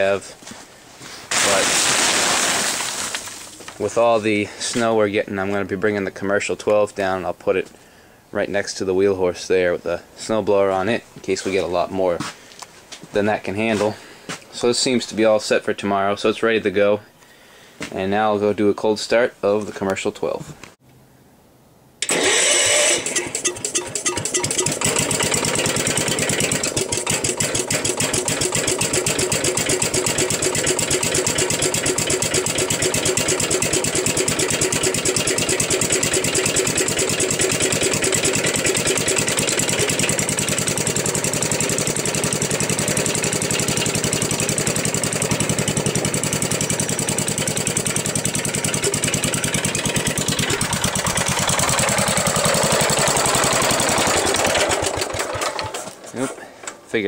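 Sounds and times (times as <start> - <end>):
small engine running: 22.0 - 56.0.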